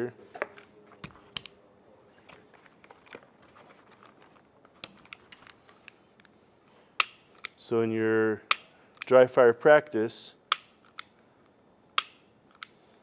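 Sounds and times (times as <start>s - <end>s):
pistol clicks and taps: 7.0s - 7.6s, 8.5s - 9.1s, 10.5s - 11.1s, 12.0s - 12.8s.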